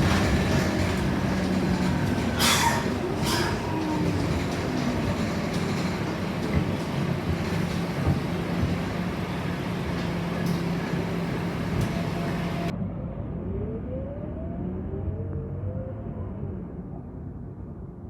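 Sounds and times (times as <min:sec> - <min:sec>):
bus diesel engine droning: 0:00.0 - 0:12.7
interior rattles and clicks: 0:00.0 - 0:12.7.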